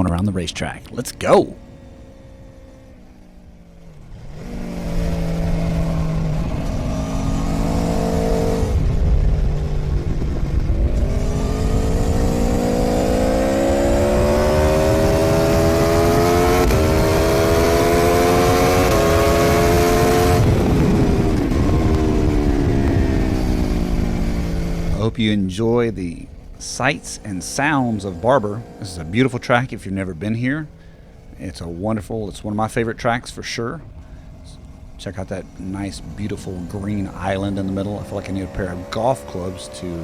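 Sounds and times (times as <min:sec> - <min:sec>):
motorcycle engine accelerating: 0:00.0 - 0:40.0.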